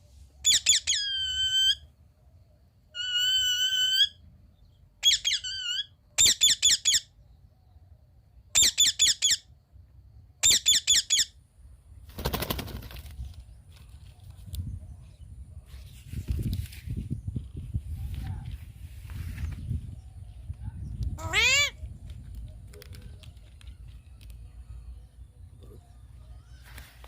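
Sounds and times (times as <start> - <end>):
parakeet whistling and shrieking: 0.4 - 1.8, 3.0 - 4.2, 5.0 - 7.0, 8.6 - 9.4, 21.2 - 21.8.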